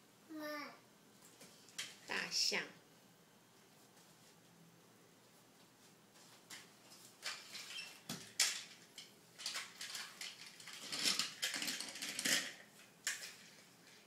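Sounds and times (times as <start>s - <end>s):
hard toys knocking together: 7.2s - 13.6s.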